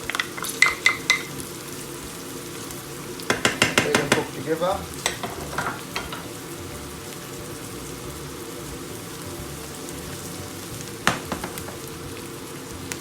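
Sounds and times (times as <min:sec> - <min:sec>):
onion sizzling in hot oil: 0:00.0 - 0:13.0
sharp knock: 0:11.1 - 0:11.8.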